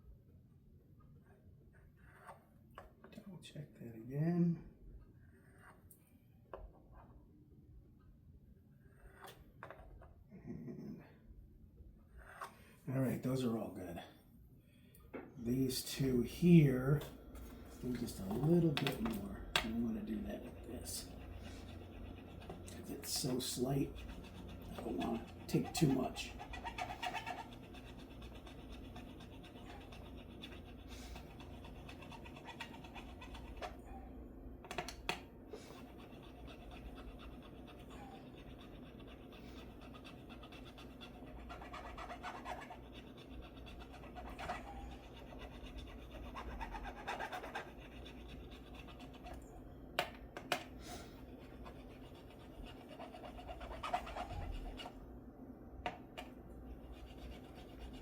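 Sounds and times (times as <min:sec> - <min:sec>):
file scraping guitar frets: 0:20.0 - 0:33.7.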